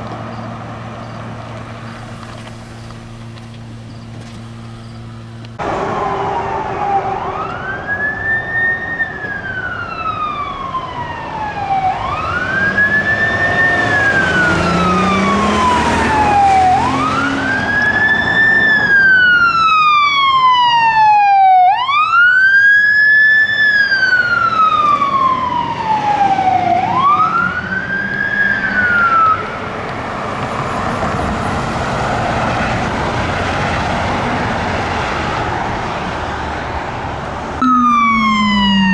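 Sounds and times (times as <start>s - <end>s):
vehicle engine and road noise: 0.0s - 38.9s
siren wailing: 5.0s - 29.6s, 37.6s - 38.9s.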